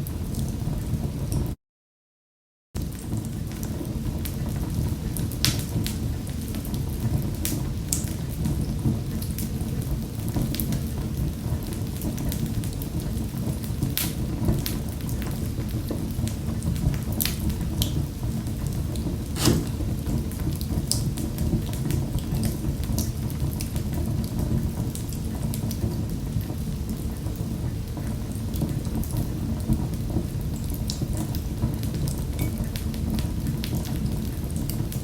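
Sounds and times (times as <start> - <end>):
fireplace fire rumbling: 2.9 - 35.0
fire popping and snapping: 19.0 - 25.8.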